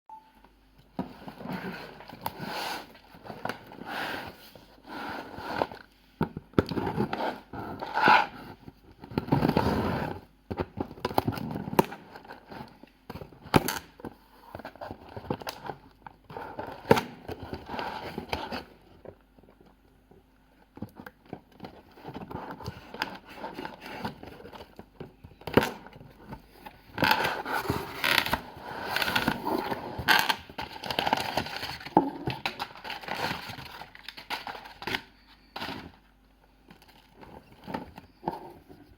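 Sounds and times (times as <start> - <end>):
packaging being opened by hand: 20.8 - 38.9.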